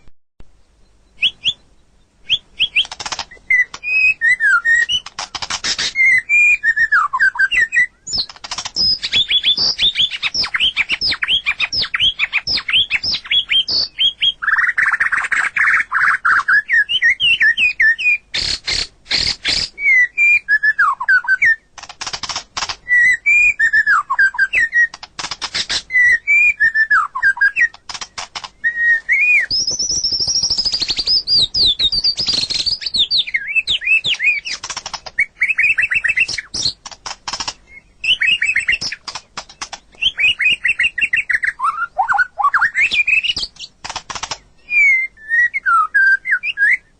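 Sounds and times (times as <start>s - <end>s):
songbird singing: 0.0s - 46.9s.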